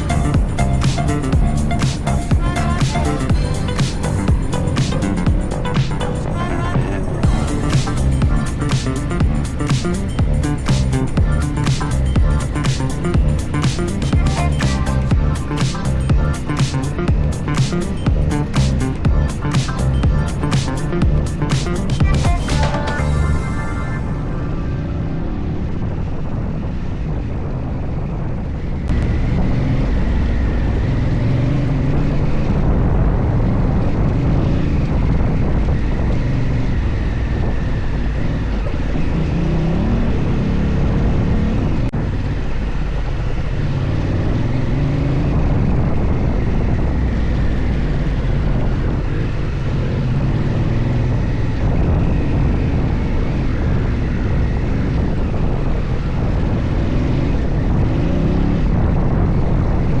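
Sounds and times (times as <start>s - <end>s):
motorcycle engine revving: 0.0s - 27.6s, 28.8s - 60.0s
wind buffeting microphone: 24.0s - 60.0s.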